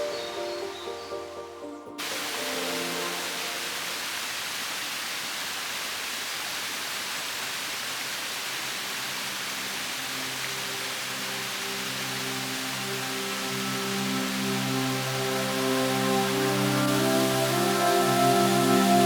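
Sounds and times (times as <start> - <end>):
soft background music: 0.0 - 4.2, 9.0 - 19.0
steady rushing hiss: 0.0 - 19.0.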